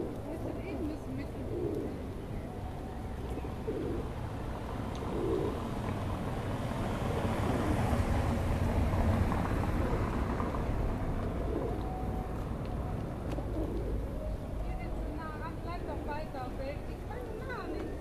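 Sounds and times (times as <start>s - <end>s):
passing traffic rumble: 0.0s - 18.0s.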